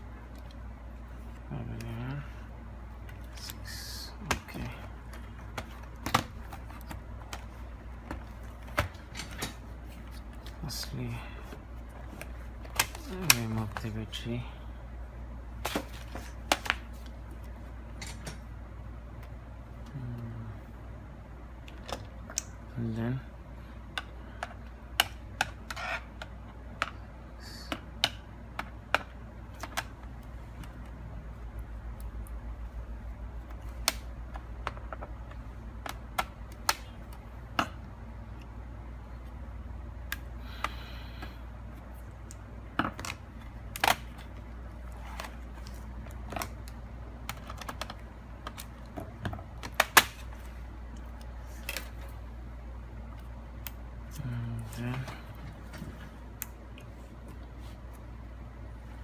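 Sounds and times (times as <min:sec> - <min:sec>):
laptop parts clicking: 0:43.0 - 0:44.4.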